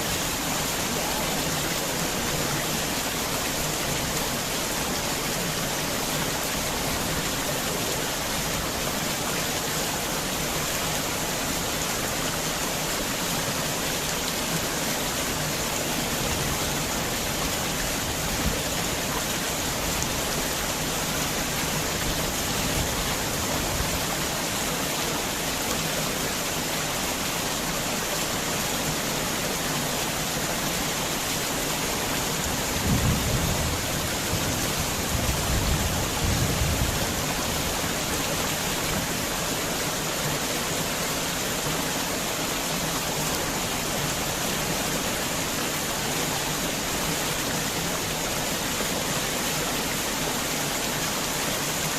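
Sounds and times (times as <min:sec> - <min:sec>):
heavy rain falling: 0:00.0 - 0:51.9
low rumble of thunder: 0:32.7 - 0:37.5.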